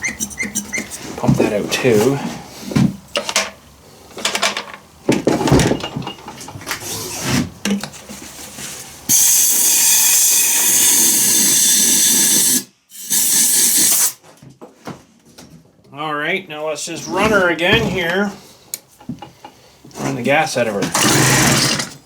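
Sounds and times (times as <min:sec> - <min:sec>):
knocks and handling noise: 0:00.0 - 0:08.8, 0:17.2 - 0:20.0
compressed air blowgun hissing: 0:09.1 - 0:14.2.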